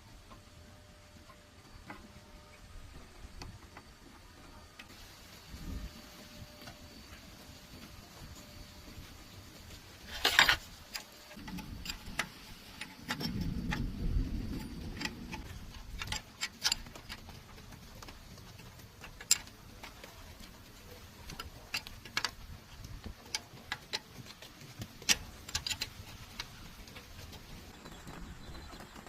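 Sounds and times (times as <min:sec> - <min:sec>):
hand tools tapping on metal: 0:06.6 - 0:27.7.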